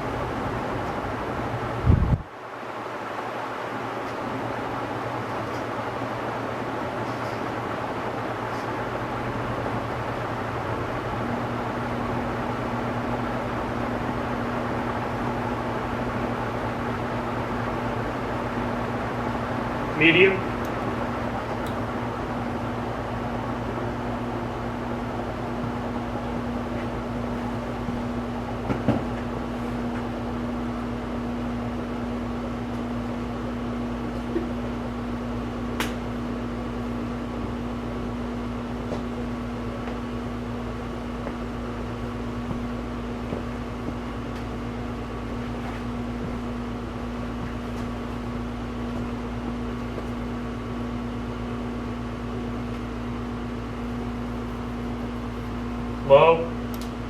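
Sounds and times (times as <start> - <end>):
ceiling fan running: 0.0 - 57.0.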